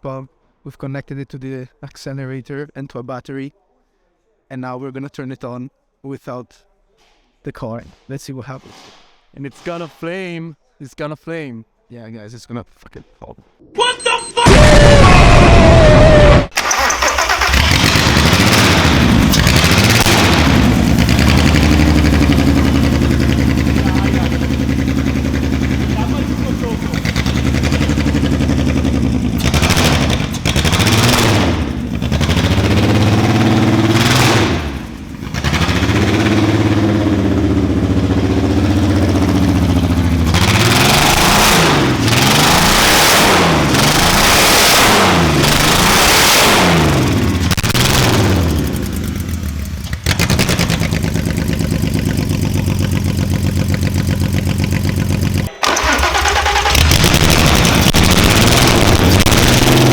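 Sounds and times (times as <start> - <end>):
car engine revving: 15.9 - 59.9
loud open exhaust blasts: 17.4 - 59.9.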